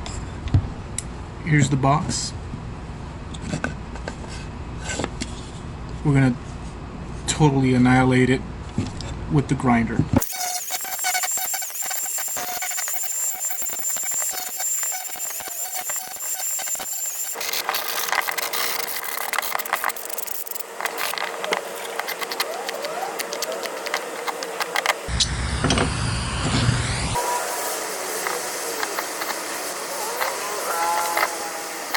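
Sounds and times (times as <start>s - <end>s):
angle grinder grinding wood: 10.2s - 25.2s, 26.4s - 31.9s.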